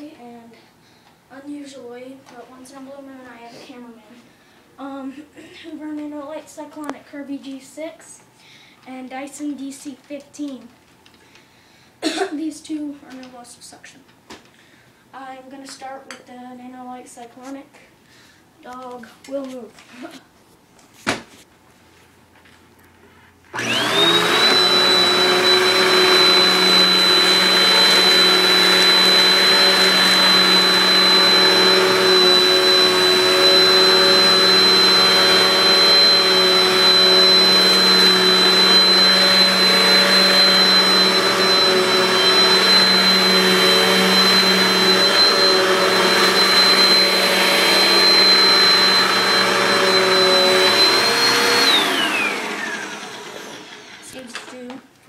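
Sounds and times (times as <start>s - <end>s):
vacuum cleaner motor whine: 23.5s - 54.2s.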